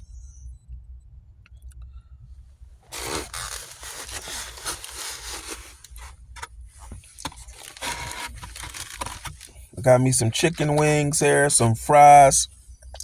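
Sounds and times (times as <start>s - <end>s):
clicks and scrapes: 2.9s - 9.6s
food packaging rustling: 2.9s - 9.7s.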